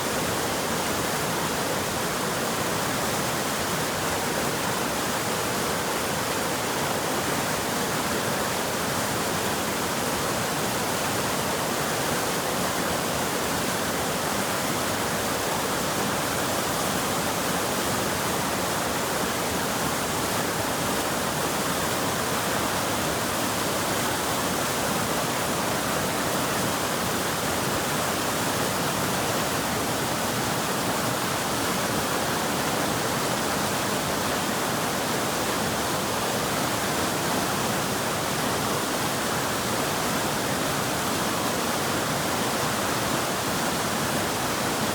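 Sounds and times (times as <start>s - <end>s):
water rushing over rapids: 0.0s - 44.9s.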